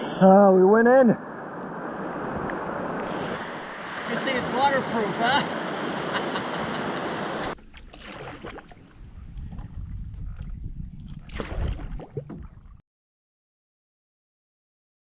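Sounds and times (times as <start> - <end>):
rushing and splashing water: 2.1 - 9.7, 11.0 - 12.8
low rumbling: 7.6 - 12.8.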